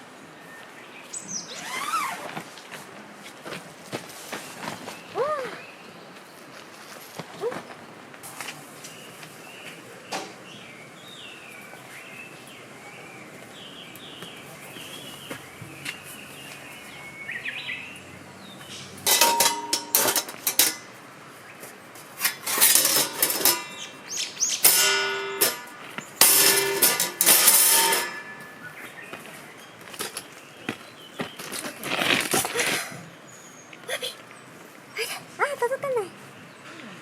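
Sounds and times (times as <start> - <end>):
birds chirping faintly: 4.3 - 37.0
metallic clanks and knocks: 18.7 - 21.0, 22.2 - 24.0, 24.6 - 28.8.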